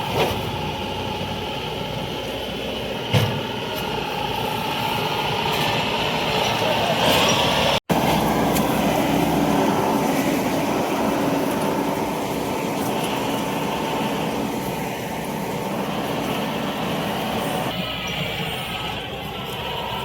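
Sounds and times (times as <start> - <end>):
combine harvester engine running: 0.0 - 20.0.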